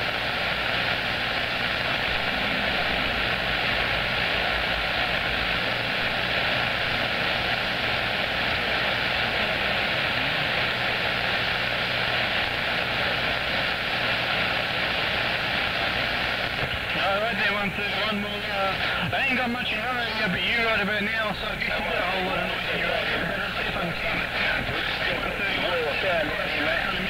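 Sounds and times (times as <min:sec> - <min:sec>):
radio static hiss: 0:00.0 - 0:27.0
low hum: 0:01.2 - 0:05.5.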